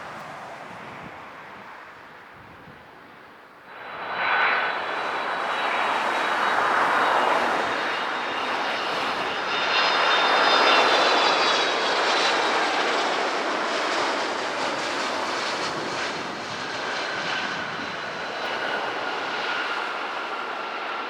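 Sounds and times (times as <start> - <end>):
jet engines roaring: 0.0 - 21.0
high engine whine: 3.6 - 21.0.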